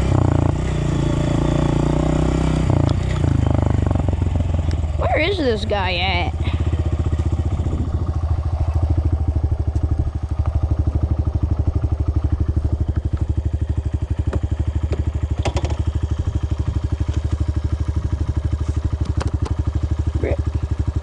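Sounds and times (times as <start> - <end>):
dirt bike engine running: 0.0 - 21.0.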